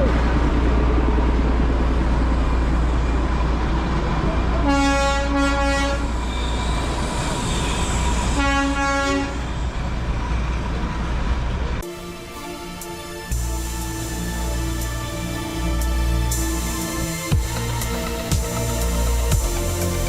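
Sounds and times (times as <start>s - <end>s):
low train rumble: 0.0s - 20.0s
train horn: 4.6s - 6.2s, 8.3s - 9.5s.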